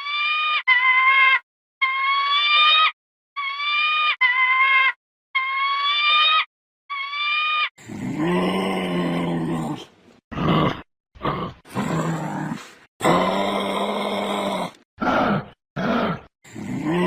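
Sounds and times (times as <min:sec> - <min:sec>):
high-pitched animal calls: 0:00.0 - 0:07.7
animal grunt: 0:07.8 - 0:17.0
rough growling animal call: 0:07.8 - 0:17.0.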